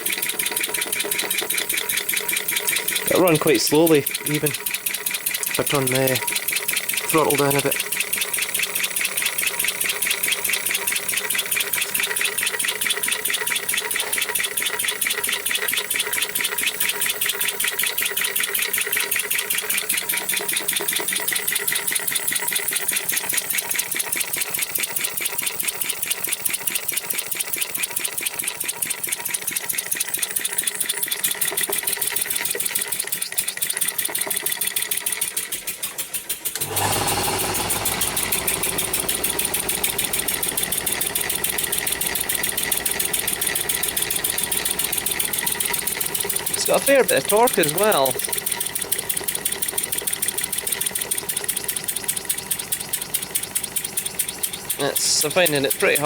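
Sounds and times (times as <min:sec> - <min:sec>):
air-powered engine puffing: 0:36.6 - 0:47.8.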